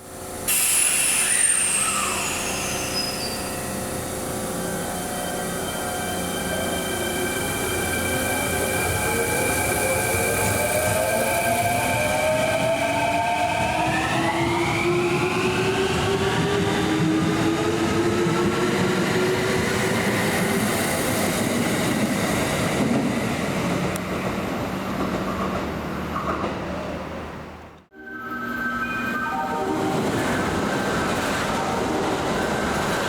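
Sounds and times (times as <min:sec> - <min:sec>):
electric train motors whining: 0:00.4 - 0:15.3.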